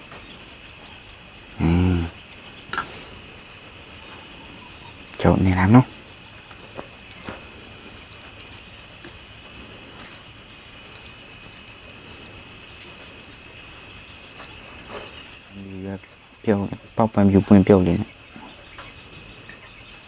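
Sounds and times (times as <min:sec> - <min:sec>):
cricket chirping: 0:00.0 - 0:20.0.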